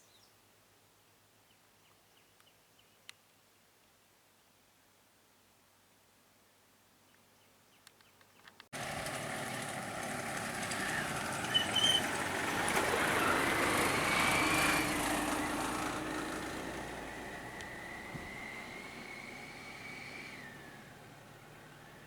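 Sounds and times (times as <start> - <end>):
short squeaks: 11.4 - 12.2.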